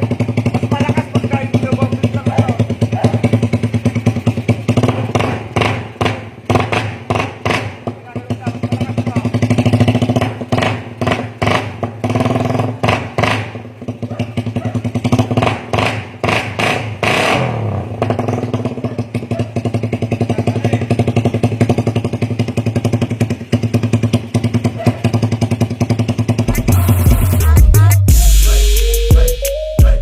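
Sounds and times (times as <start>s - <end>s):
motorcycle engine revving and idling: 0.0s - 30.0s
music: 26.5s - 30.0s.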